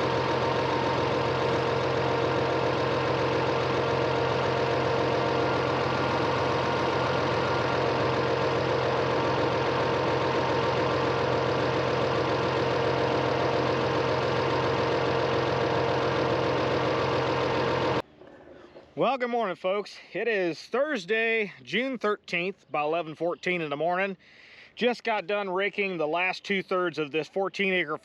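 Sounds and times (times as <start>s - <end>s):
farm machine engine idling: 0.0s - 18.1s.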